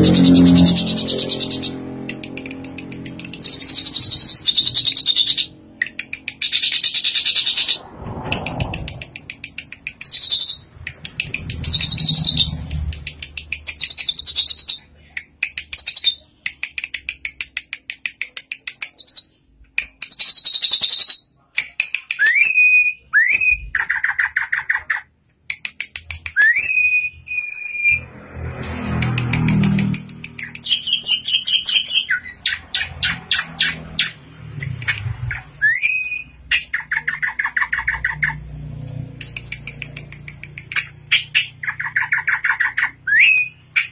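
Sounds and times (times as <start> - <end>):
bird buzzy clicking chatter: 0.0 - 22.7, 28.6 - 43.9
bird whistled notes: 3.3 - 5.5, 22.2 - 24.2, 26.4 - 28.0, 30.4 - 34.2, 35.3 - 38.0, 41.3 - 43.9.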